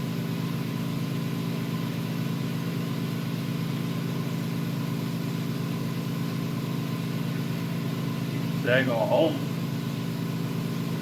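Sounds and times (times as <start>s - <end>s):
motor hum: 6.2s - 11.0s.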